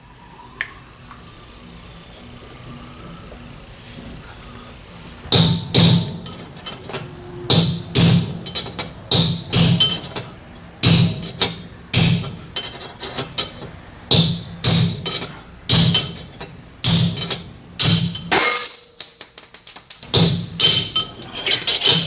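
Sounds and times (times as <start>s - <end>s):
hammer striking steel: 5.3s - 22.0s.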